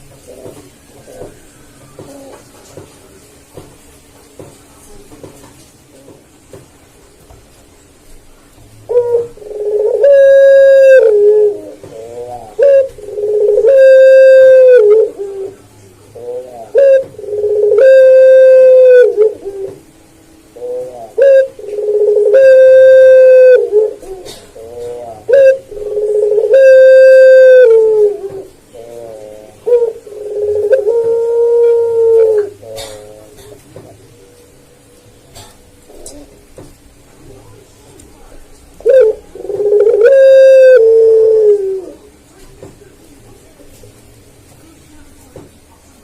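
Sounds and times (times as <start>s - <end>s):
dove cooing: 0.0s - 2.8s, 8.8s - 36.6s, 37.4s - 42.4s.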